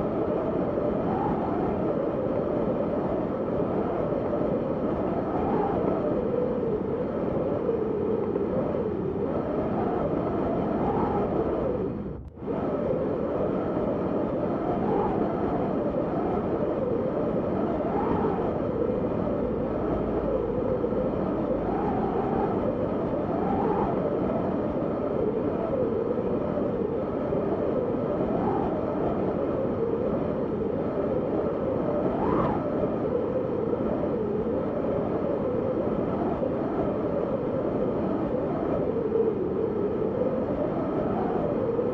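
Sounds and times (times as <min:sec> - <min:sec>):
strong wind howling: 0:00.0 - 0:41.9.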